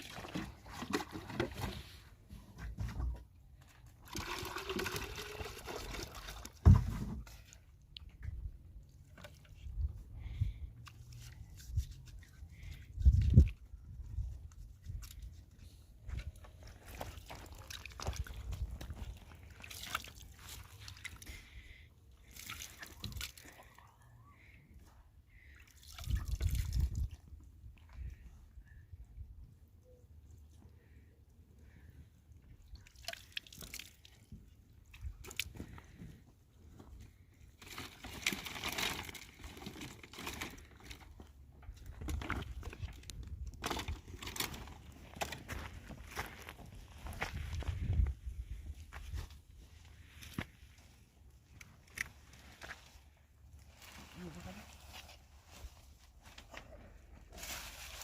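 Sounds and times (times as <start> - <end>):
water sloshing and dripping: 0.0 - 2.0, 3.6 - 9.6, 16.1 - 24.5, 25.3 - 28.2, 31.6 - 36.0
rustling and crinkling: 34.2 - 58.0.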